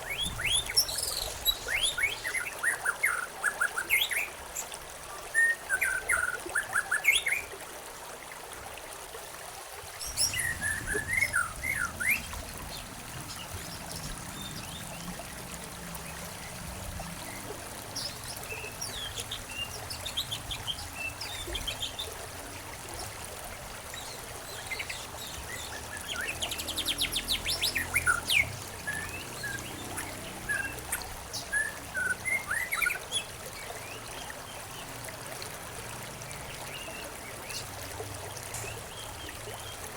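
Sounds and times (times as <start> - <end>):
songbirds chirping and trilling: 0.0 - 7.5, 10.0 - 35.2
rush of water: 0.0 - 39.9
trickle of running water: 0.0 - 39.9.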